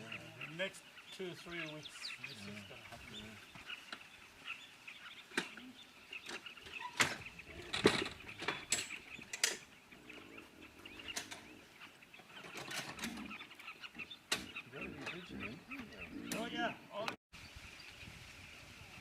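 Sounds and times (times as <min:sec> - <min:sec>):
faint birds calling: 0:00.0 - 0:19.0.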